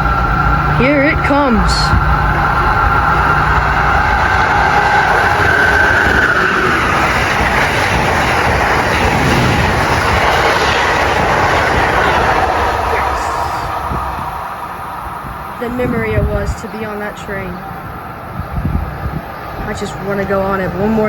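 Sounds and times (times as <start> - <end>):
high whine: 0.0 - 19.8
train wheels rushing on rail: 0.0 - 21.0.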